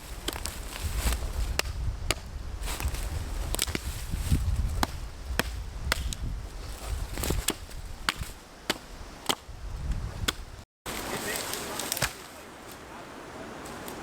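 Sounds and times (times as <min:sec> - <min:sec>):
axe chopping wood: 0:01.5 - 0:02.9, 0:04.7 - 0:06.3, 0:07.2 - 0:09.5, 0:10.2 - 0:10.4, 0:11.9 - 0:12.3.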